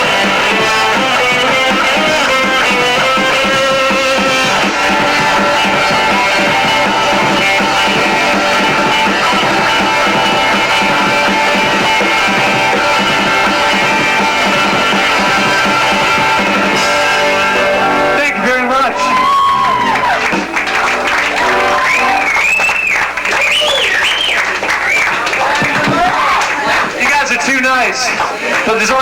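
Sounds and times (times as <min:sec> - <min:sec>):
rock band instrumental: 0:00.0 - 0:23.2.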